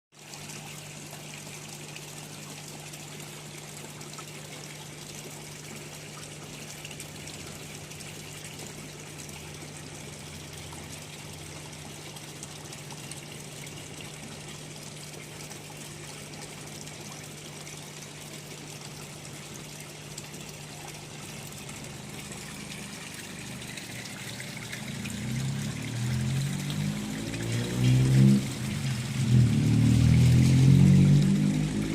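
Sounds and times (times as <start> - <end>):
water trickling and pouring: 0.1 - 31.9
low hum: 21.5 - 31.9
pitched sound with rising tones: 24.8 - 31.9.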